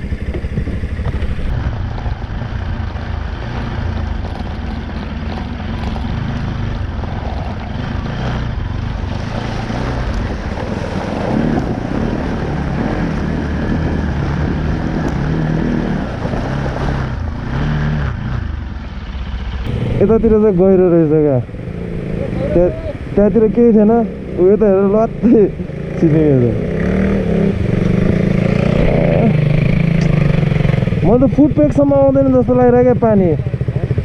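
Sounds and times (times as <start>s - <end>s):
wind buffeting microphone: 0.0s - 4.9s, 6.8s - 17.5s
motorcycle engine running: 0.0s - 34.0s.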